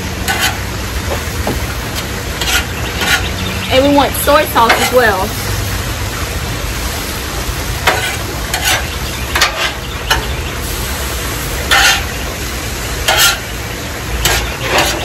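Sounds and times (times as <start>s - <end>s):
food sizzling on a griddle: 0.0s - 15.0s
metal spatula scraping: 0.2s - 0.6s, 1.9s - 3.4s, 7.8s - 9.9s, 11.7s - 12.2s, 13.1s - 13.5s, 14.2s - 15.0s.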